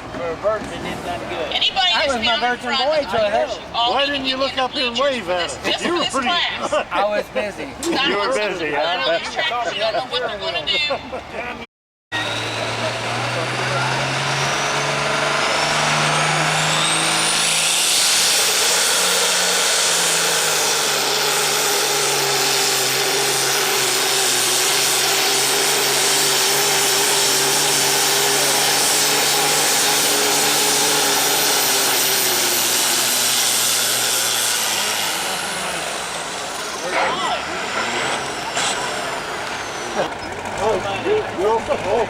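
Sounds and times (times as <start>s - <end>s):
diesel tractor engine under load: 12.2s - 42.0s.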